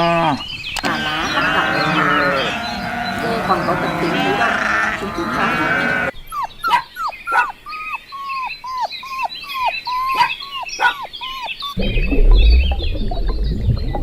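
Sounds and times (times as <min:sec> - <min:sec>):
small birds chirping: 0:00.5 - 0:11.8
animal calling in falling cries: 0:00.8 - 0:06.1.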